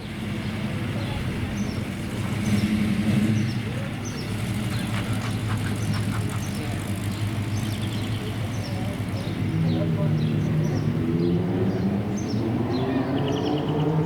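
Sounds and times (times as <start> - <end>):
car engine idling: 0.0 - 10.9.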